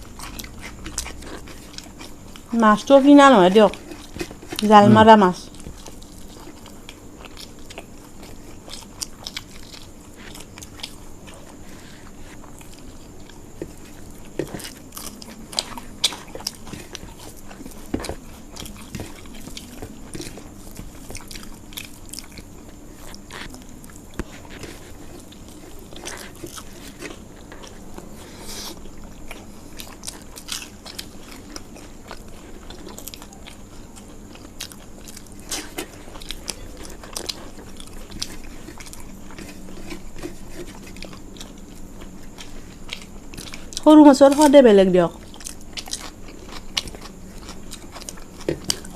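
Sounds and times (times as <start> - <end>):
crunchy chewing: 0.0 - 48.9.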